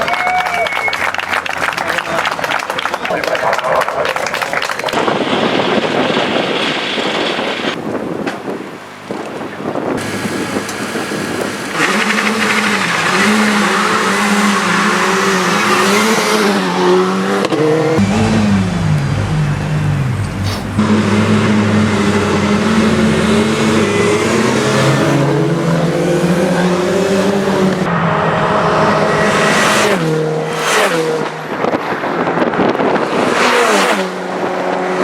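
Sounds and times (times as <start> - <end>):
race car engine revving: 10.0 - 35.0.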